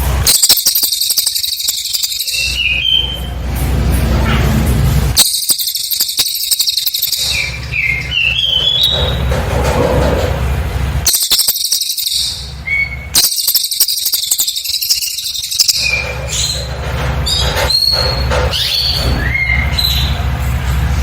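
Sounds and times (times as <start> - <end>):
bird trilling: 0.2 - 3.4, 5.2 - 9.3, 11.0 - 20.2
bird whistles: 0.2 - 3.4, 5.2 - 9.2, 11.1 - 16.7, 17.3 - 20.2.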